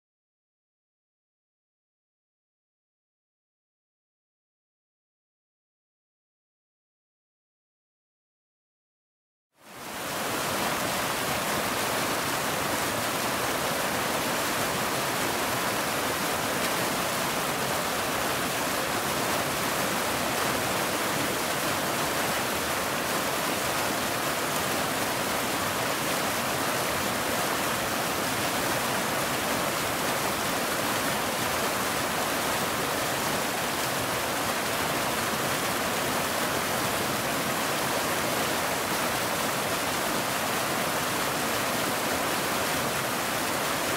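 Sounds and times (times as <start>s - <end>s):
waterfall rushing: 9.6s - 43.9s.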